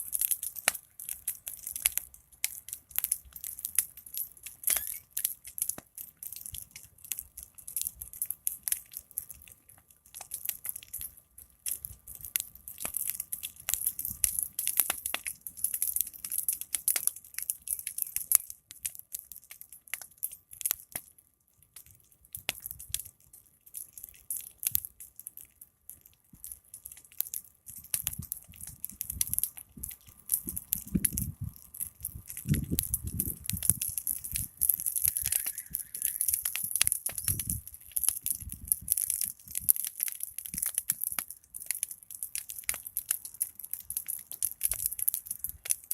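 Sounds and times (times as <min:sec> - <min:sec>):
wood fire crackling and popping: 0:00.0 - 0:45.9
flames hissing: 0:32.1 - 0:37.6.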